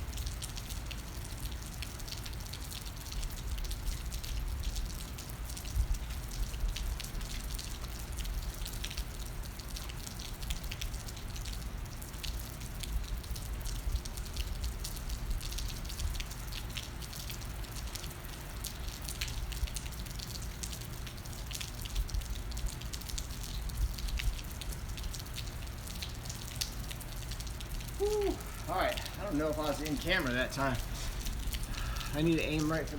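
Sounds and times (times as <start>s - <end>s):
raindrops ticking: 0.0s - 32.9s
low steady rumble: 20.8s - 32.9s.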